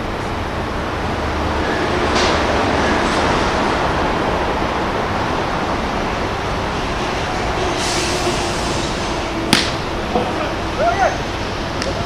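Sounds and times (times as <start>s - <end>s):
steady rumbling: 0.0s - 12.0s
sharp crack: 9.5s - 9.9s.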